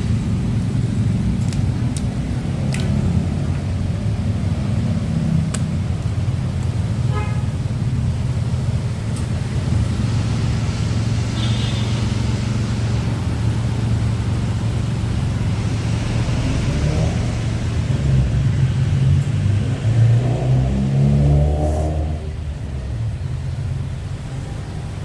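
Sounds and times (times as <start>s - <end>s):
car engine running: 0.0s - 19.2s
road rumble: 0.0s - 25.0s.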